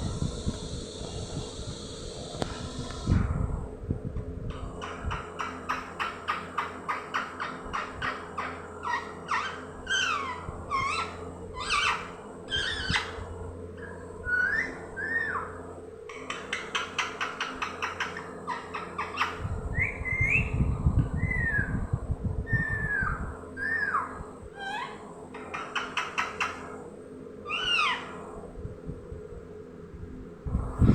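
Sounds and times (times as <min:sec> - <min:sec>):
low rumbling noise: 0:00.0 - 0:16.4, 0:17.8 - 0:25.6, 0:26.6 - 0:30.9
parrot chirping: 0:04.8 - 0:13.2, 0:13.8 - 0:15.5, 0:16.1 - 0:20.5, 0:22.6 - 0:26.6, 0:27.4 - 0:28.1
parrot whistling: 0:04.8 - 0:13.2, 0:13.8 - 0:15.5, 0:27.4 - 0:28.1.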